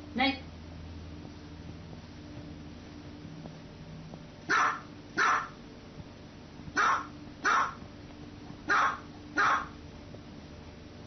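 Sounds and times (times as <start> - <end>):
small dog barking: 4.5 - 5.6, 6.8 - 7.8, 8.7 - 9.8.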